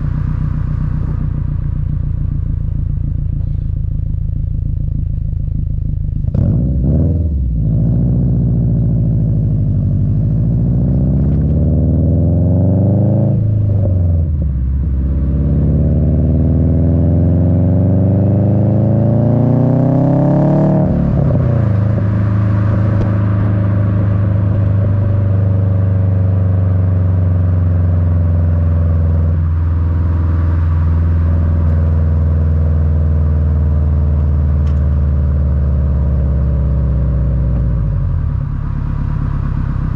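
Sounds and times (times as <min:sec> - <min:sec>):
car engine rumbling through exhaust: 0:00.0 - 0:39.9.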